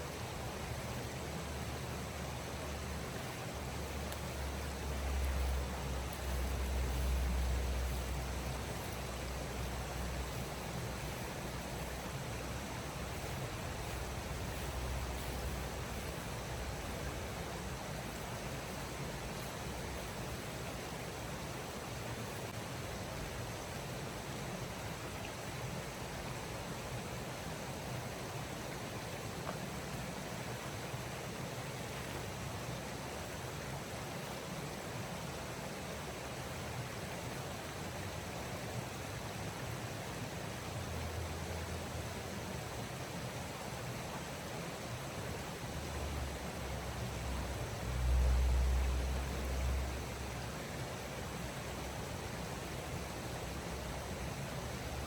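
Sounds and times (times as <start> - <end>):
faint ticks: 4.0 - 9.1, 29.4 - 29.7.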